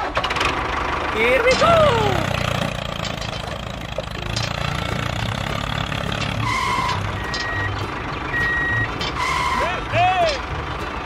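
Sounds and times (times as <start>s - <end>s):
tractor engine throbbing: 0.0s - 11.0s
high electronic beeps: 6.5s - 9.5s.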